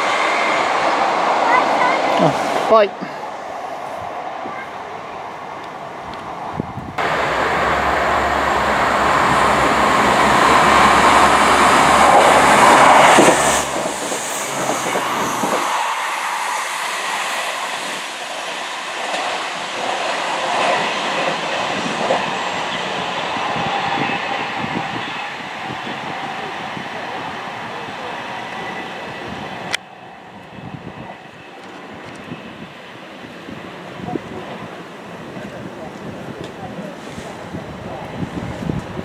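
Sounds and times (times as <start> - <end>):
train passing: 0.0 - 39.0
wheels clattering on rails: 7.0 - 15.9.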